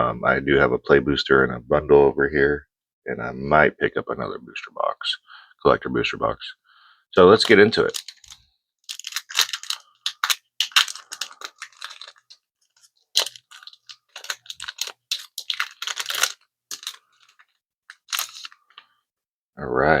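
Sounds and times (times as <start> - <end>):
foil wrapper tearing and crinkling: 7.3 - 18.9.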